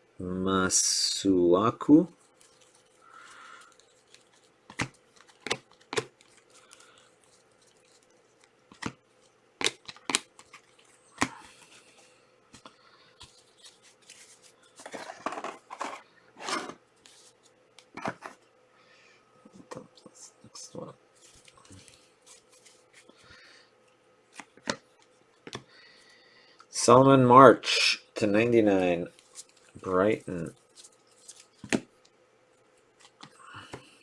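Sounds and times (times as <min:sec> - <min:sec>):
card packs crinkling and rustling: 0:01.9 - 0:18.4, 0:21.1 - 0:23.6, 0:28.7 - 0:34.0
cards clicking and snapping: 0:03.3 - 0:09.0, 0:09.6 - 0:14.3.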